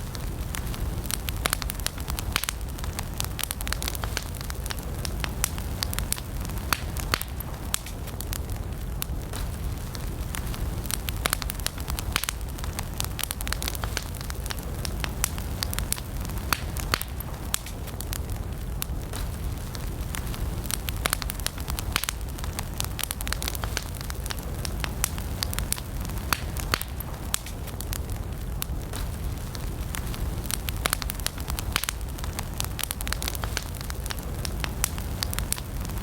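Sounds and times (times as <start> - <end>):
campfire crackles and pops: 0.0 - 36.0
flames rumbling: 0.0 - 36.0.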